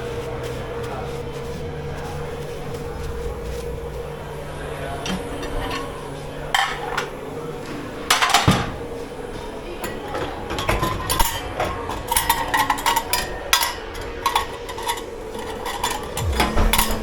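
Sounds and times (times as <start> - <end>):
steady background hum: 0.0 - 17.0
dishes and cutlery clattering: 5.0 - 7.1, 8.0 - 8.8, 9.8 - 17.0.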